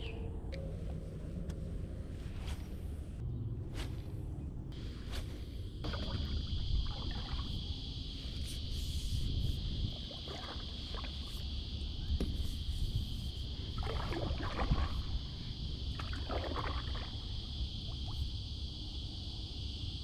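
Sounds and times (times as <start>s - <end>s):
steady low rumble: 0.0s - 16.0s
constant high-pitched hiss: 0.0s - 20.0s
water splashing around boat hull: 5.8s - 7.6s, 9.9s - 11.5s, 13.7s - 18.2s.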